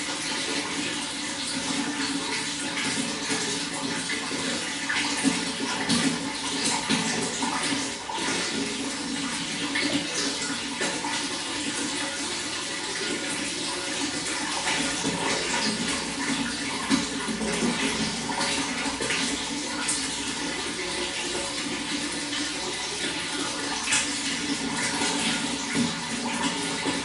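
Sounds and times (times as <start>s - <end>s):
running water with splashes: 0.0s - 27.0s.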